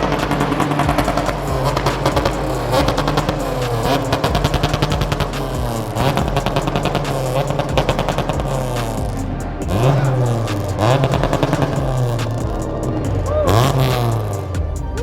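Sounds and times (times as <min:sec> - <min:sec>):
car engine revving: 0:00.0 - 0:15.0
exhaust crackling pops: 0:00.0 - 0:15.0.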